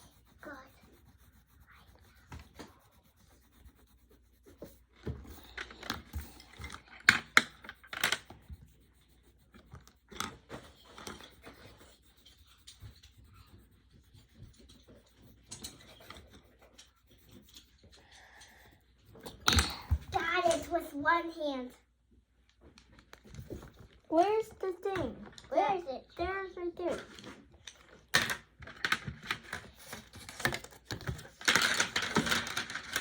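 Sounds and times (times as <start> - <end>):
pencil scratching on paper: 0.0 - 20.9, 29.2 - 33.0.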